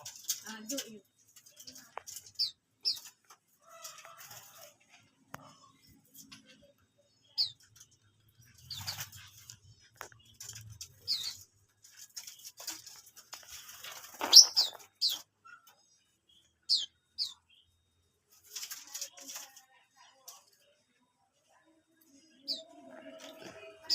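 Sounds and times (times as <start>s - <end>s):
wings fluttering and rustling: 0.0s - 6.7s, 7.4s - 15.8s, 18.3s - 20.8s
small birds chirping: 0.0s - 23.9s.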